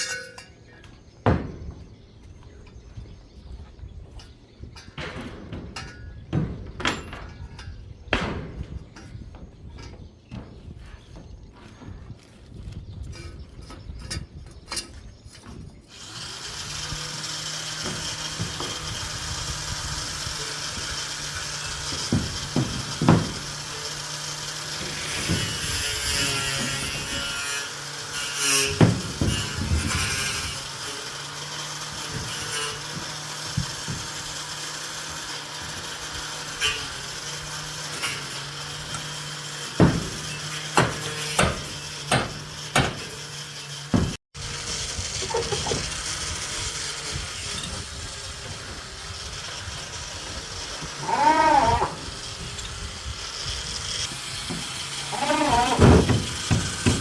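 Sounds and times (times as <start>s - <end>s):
knocks and clanks: 0.0s - 2.0s, 4.0s - 15.7s, 17.2s - 19.3s, 20.2s - 27.9s, 28.5s - 44.2s, 53.8s - 57.0s
power tool running: 15.9s - 57.0s.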